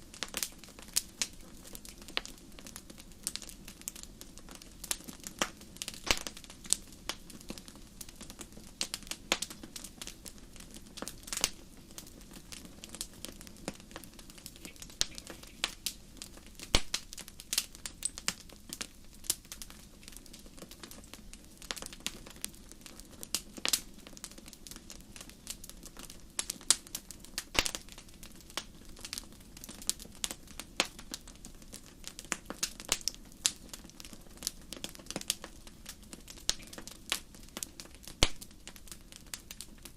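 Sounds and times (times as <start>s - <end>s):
fire hissing: 0.0s - 22.0s
campfire crackling and popping: 0.0s - 39.9s.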